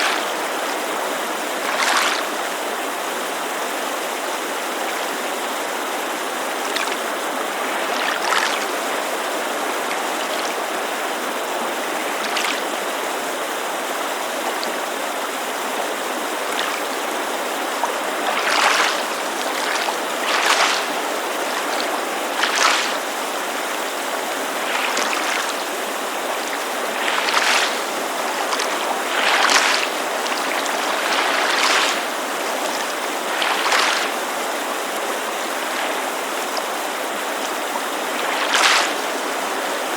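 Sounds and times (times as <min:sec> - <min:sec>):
creek rushing: 0:00.0 - 0:39.9
water lapping against shore: 0:00.0 - 0:39.9.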